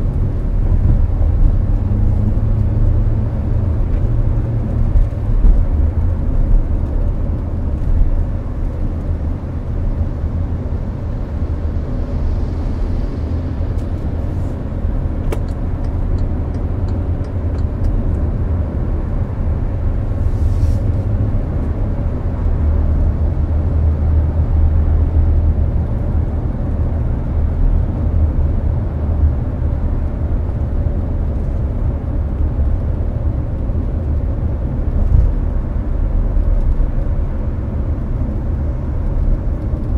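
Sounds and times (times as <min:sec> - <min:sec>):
air conditioning fan rush: 0:00.0 - 0:39.9
road and engine rumble: 0:00.0 - 0:39.9.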